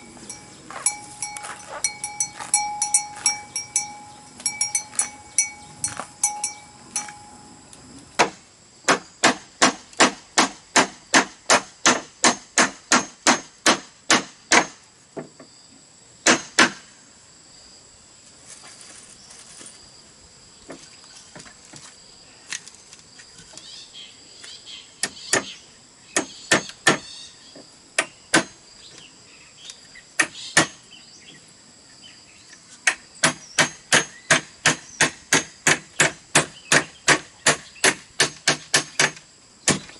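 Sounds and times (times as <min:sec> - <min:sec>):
clanking bell ringing: 0:00.0 - 0:07.6
insects whining: 0:00.0 - 0:39.9
tool striking bamboo: 0:08.2 - 0:14.8, 0:16.2 - 0:16.9, 0:26.2 - 0:27.1, 0:28.0 - 0:28.6, 0:30.2 - 0:30.8, 0:32.8 - 0:39.9.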